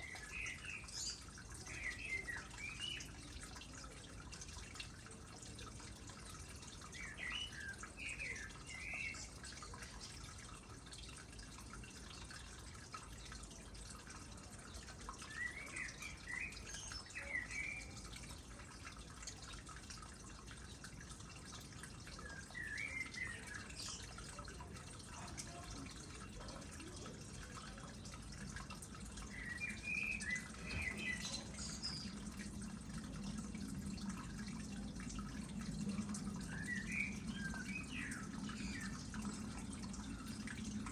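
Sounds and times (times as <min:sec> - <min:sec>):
songbird chirping: 0:00.0 - 0:03.6, 0:06.2 - 0:10.3, 0:14.4 - 0:18.6, 0:22.1 - 0:40.9
water trickling into pond: 0:00.0 - 0:40.9.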